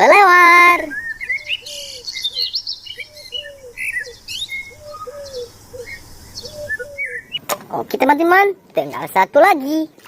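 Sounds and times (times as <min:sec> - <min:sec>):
bird low arching call: 0:00.4 - 0:07.5
short high bird chirps: 0:00.8 - 0:07.4.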